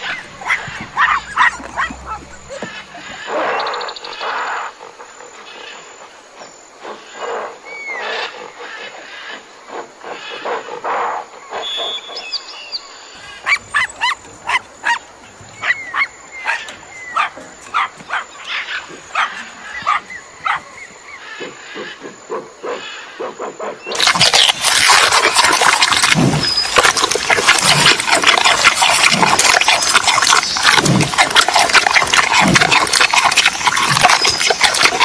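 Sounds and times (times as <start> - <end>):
small dog yapping: 0.0 - 3.1, 13.4 - 15.0
rough noisy animal calls: 0.0 - 5.9, 12.8 - 35.0.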